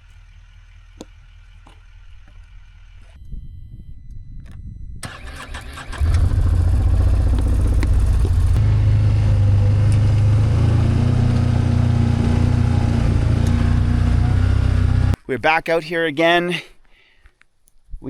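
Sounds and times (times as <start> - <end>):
vehicle engine running: 0.0 - 3.2, 5.0 - 15.2.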